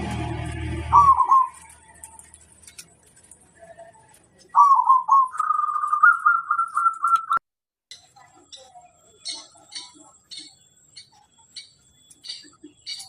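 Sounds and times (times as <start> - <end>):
dove cooing: 0.8 - 1.8, 4.6 - 7.2.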